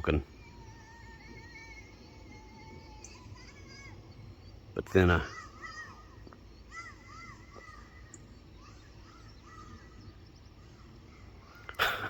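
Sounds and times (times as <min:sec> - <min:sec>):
birds calling and singing: 0:00.0 - 0:12.0.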